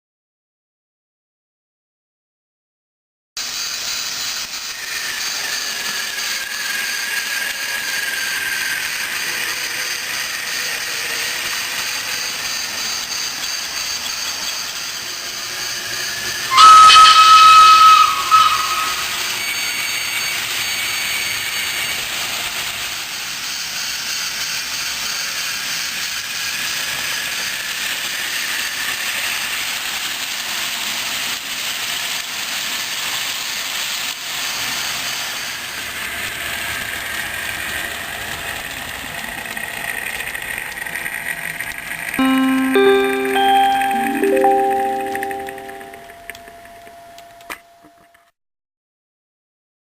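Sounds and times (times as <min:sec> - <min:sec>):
train whistle blast: 0:16.0 - 0:19.8.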